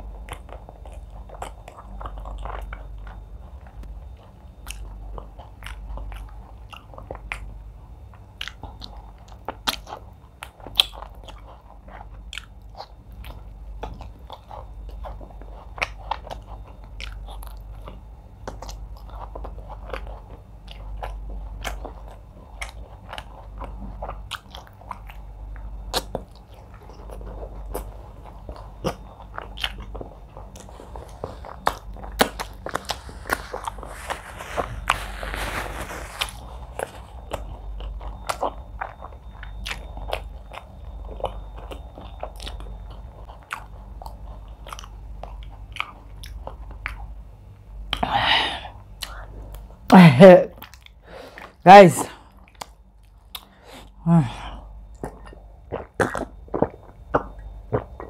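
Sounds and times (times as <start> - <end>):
chewing with wet mouth clicks: 0.0 - 49.9, 50.5 - 51.6, 52.2 - 58.0.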